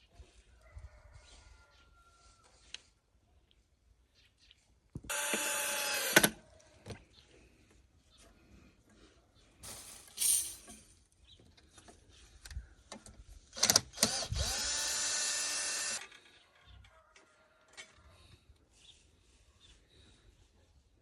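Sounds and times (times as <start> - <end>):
small motor tool whirring: 5.1 - 6.4, 13.5 - 16.1
knocks and handling clatter: 9.6 - 12.0.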